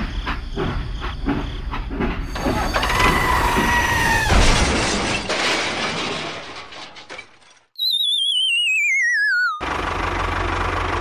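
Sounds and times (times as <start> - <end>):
train clacking on track: 0.0 - 3.9
crash: 2.4 - 7.7.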